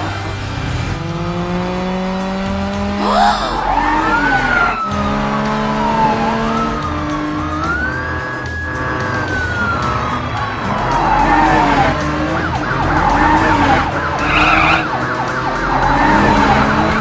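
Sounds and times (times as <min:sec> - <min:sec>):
cartoon vehicle whine: 0:00.0 - 0:17.0
background music with low beat: 0:03.6 - 0:17.0.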